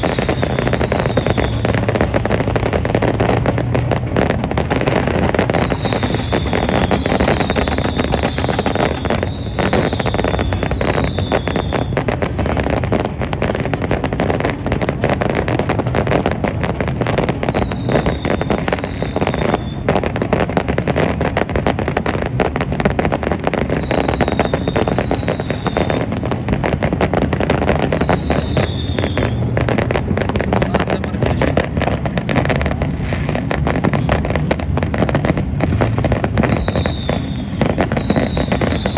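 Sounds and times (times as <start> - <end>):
fireworks falling whistles: 0.0 - 12.9, 17.0 - 21.5, 23.3 - 29.8, 35.6 - 38.9
fireworks crackling and popping: 0.0 - 38.9.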